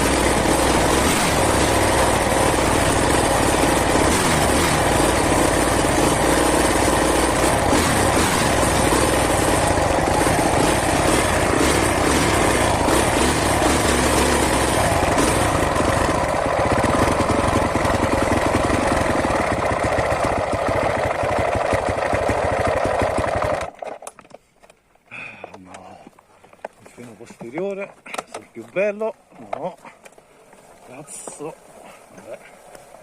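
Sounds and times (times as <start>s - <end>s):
motorcycle engine running: 0.0s - 23.8s.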